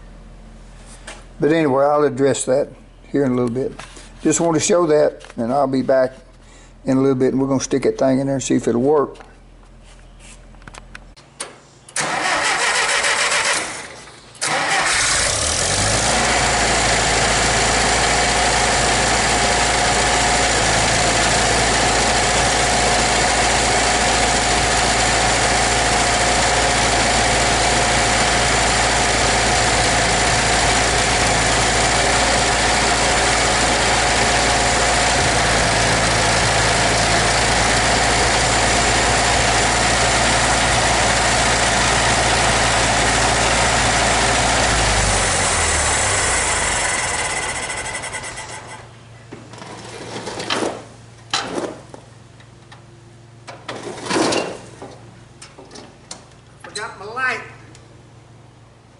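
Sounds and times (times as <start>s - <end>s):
tractor engine starter cranking: 11.9s - 16.5s, 44.8s - 48.9s
tractor engine idling: 12.0s - 49.0s.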